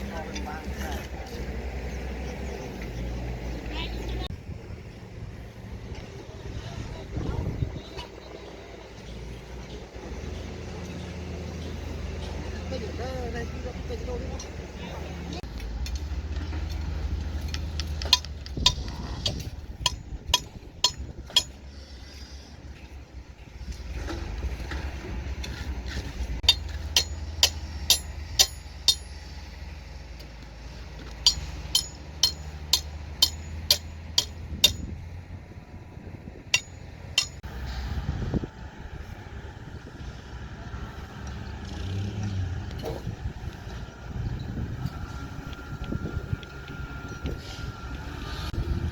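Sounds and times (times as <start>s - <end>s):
low engine rumble: 0.0s - 48.9s
metal clinking on metal: 17.4s - 21.6s, 26.4s - 29.2s, 31.2s - 35.0s, 36.6s - 37.4s.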